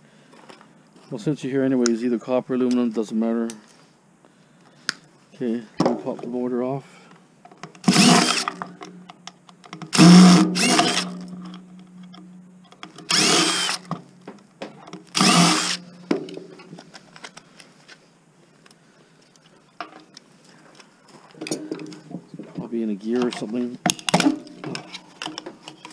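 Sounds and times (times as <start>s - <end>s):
cordless drill running: 7.8s - 8.6s, 9.9s - 11.2s, 13.0s - 13.9s, 15.1s - 15.9s.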